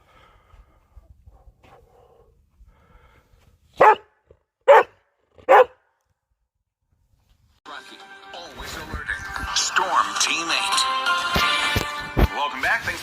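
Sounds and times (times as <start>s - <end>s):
dog barking: 3.8s - 5.8s.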